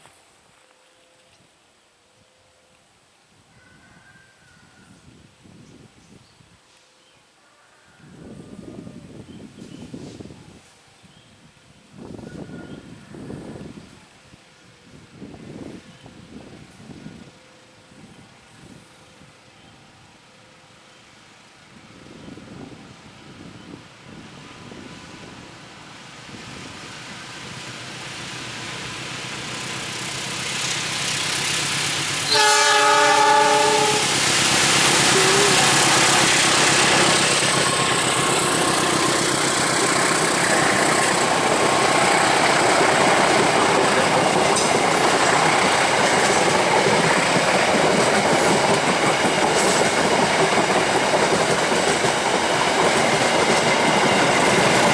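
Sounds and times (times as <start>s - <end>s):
train horn: 32.2s - 34.3s, 35.0s - 37.0s
train wheels clattering on rails: 34.1s - 54.9s.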